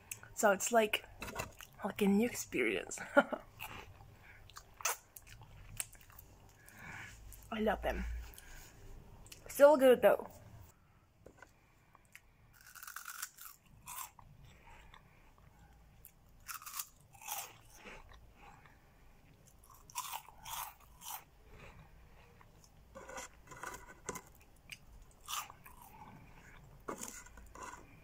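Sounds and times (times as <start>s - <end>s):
crunchy snack chewing: 12.1s - 18.6s, 19.4s - 21.3s, 22.4s - 28.0s.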